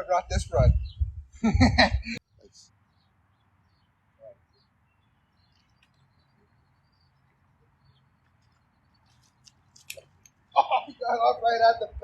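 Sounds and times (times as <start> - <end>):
faint bird chirps: 2.3 - 9.9.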